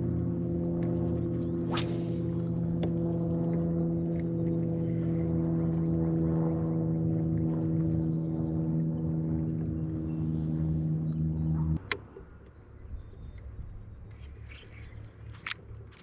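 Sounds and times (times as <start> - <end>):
electric trolling motor humming: 0.0 - 11.8.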